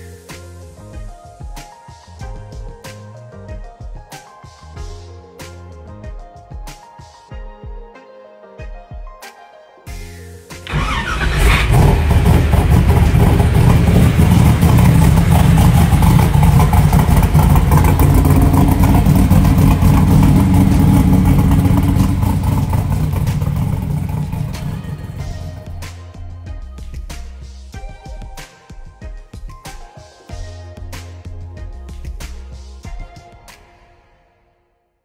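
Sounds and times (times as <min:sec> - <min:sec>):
car engine starting and running: 0:10.7 - 0:25.8.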